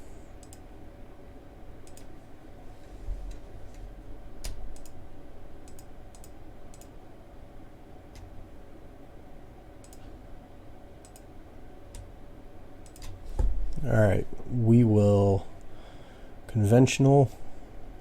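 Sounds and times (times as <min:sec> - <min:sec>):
computer mouse clicking: 0:00.4 - 0:00.6, 0:01.8 - 0:02.1, 0:04.4 - 0:05.0, 0:05.6 - 0:07.0, 0:09.8 - 0:10.1, 0:11.0 - 0:11.3, 0:12.8 - 0:13.2.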